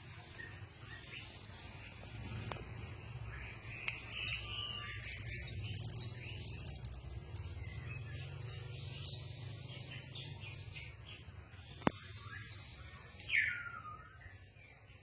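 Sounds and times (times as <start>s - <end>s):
songbird chirping and whistling: 3.2s - 15.0s.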